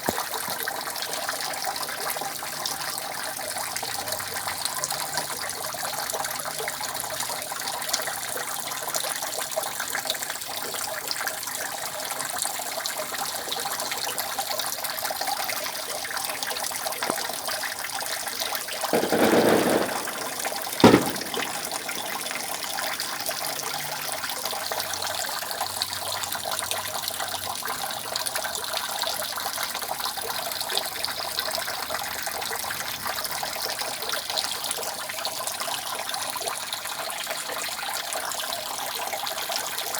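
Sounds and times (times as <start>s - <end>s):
rainwater dripping from roof: 18.9s - 24.1s
sharp knock: 19.0s - 23.1s.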